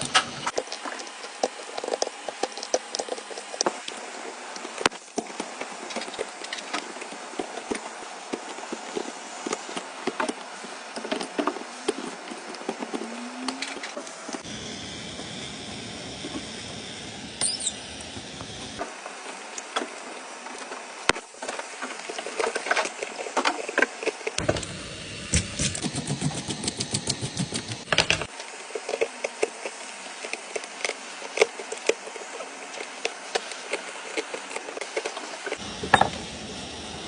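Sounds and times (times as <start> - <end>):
small motor buzzing: 14.4 - 18.8, 24.4 - 28.3.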